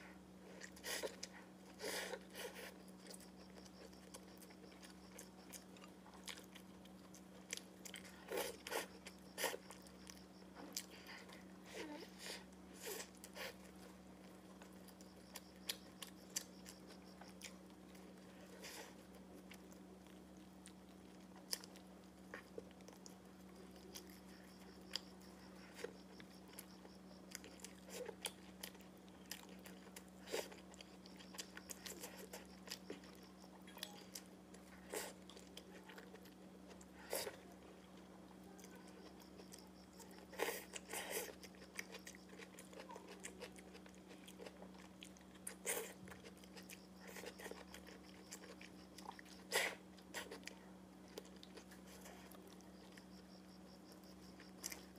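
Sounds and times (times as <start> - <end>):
steady low hum: 0.0 - 54.9
person chewing food: 0.1 - 54.9.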